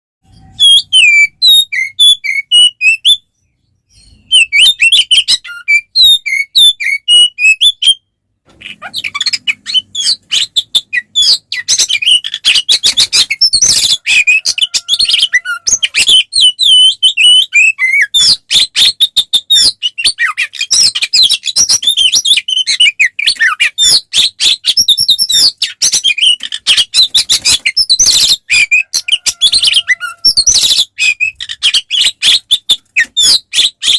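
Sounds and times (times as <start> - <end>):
bird singing fast chirping phrases: 0.2 - 33.9.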